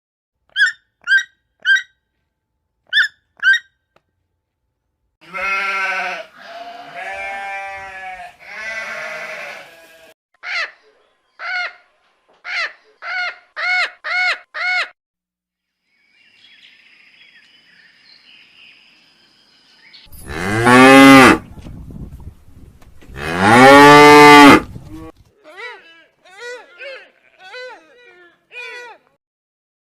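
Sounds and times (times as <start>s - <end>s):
animal chirps and calls: 0.5s - 1.9s, 2.9s - 3.7s
cow mooing: 5.2s - 10.0s, 20.2s - 21.4s, 23.1s - 25.1s.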